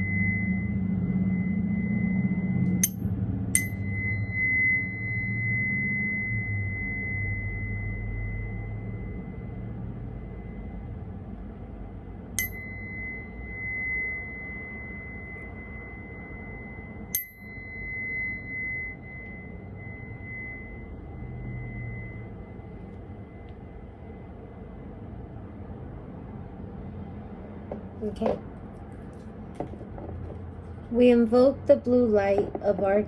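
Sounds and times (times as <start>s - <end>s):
tuning fork ringing: 0.0s - 11.0s, 12.4s - 23.9s
tuning fork tap click: 2.8s - 4.1s, 12.4s - 12.8s, 17.2s - 17.6s.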